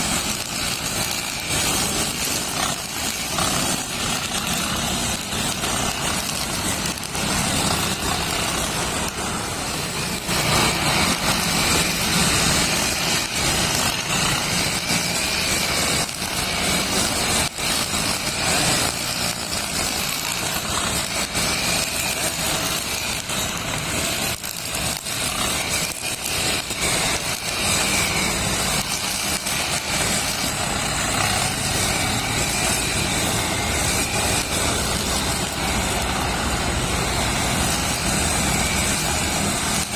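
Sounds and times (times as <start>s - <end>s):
brush cutter running at high revs: 0.0s - 39.9s.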